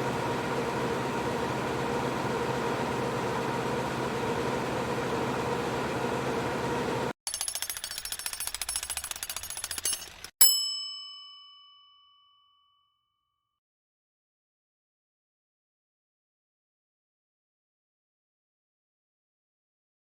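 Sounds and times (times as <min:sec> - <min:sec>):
printer fans and motors whirring: 0:00.0 - 0:07.1
fast even ticking: 0:07.3 - 0:10.3.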